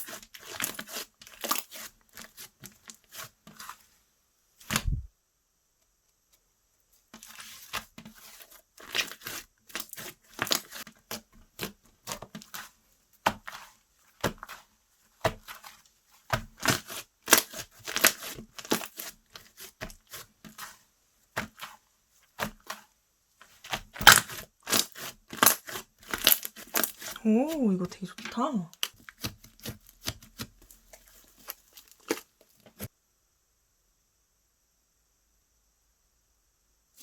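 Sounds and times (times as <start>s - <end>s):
slime squished by hand: 23.5s - 27.6s, 28.8s - 32.9s.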